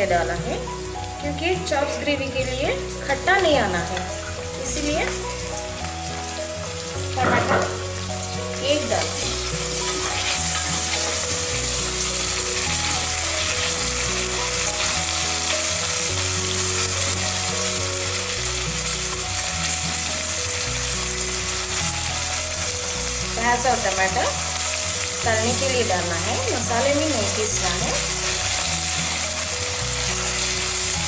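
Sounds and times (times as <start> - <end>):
onions sizzling in hot oil: 0.0 - 31.0
spatula stirring: 9.2 - 14.9.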